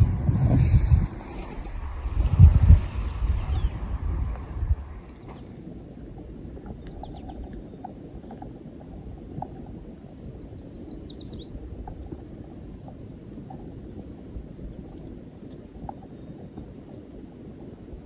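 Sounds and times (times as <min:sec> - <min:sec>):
low outdoor rumble: 0:00.0 - 0:18.0
songbird trill: 0:02.8 - 0:05.6, 0:06.6 - 0:12.2, 0:12.9 - 0:16.6
faint bird chirps: 0:06.7 - 0:07.8, 0:09.9 - 0:11.6.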